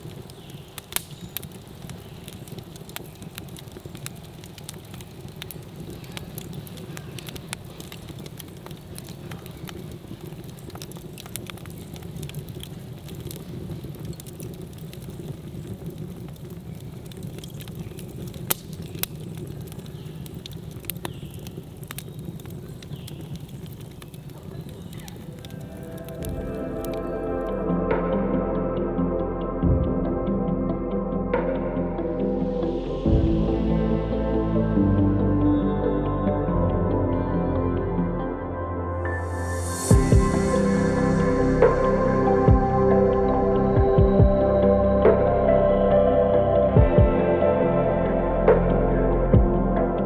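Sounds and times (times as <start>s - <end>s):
campfire roaring: 0.0s - 28.0s, 39.4s - 50.0s
fire crackles and pops: 0.0s - 28.2s, 39.0s - 50.0s.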